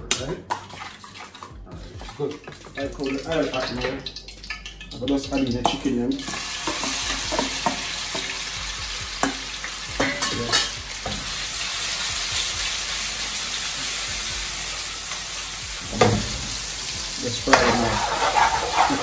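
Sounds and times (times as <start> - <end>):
metal spoon scraping a pan: 0.2 - 5.0, 5.6 - 8.6, 9.2 - 11.4, 15.9 - 19.0
chicken sizzling in a wok: 5.6 - 19.0.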